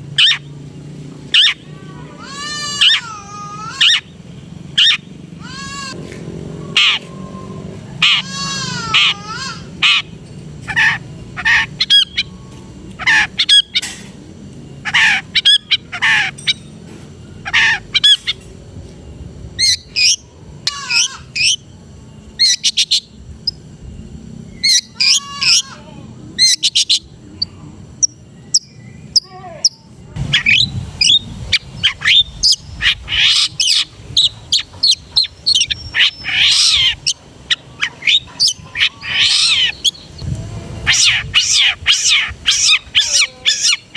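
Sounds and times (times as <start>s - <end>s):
harsh chattering bird squawks: 0.2s - 0.5s, 1.3s - 6.0s, 6.7s - 12.4s, 13.0s - 14.0s, 14.8s - 16.7s, 17.4s - 18.4s, 19.6s - 21.6s, 22.4s - 23.2s, 24.6s - 43.9s.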